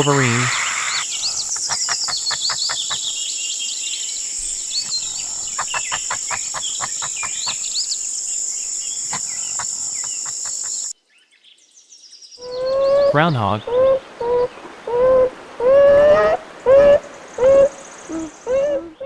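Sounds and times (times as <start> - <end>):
birds chirping: 0.0 - 10.9, 12.4 - 19.0
insects droning: 0.0 - 10.9, 12.4 - 19.0.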